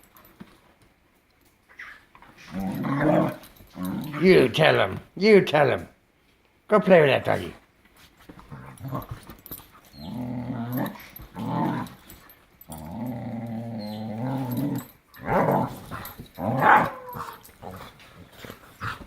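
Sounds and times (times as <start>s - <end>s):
dog growling: 2.3s - 4.6s, 8.4s - 9.3s, 9.9s - 19.0s
dog barking: 16.6s - 17.4s.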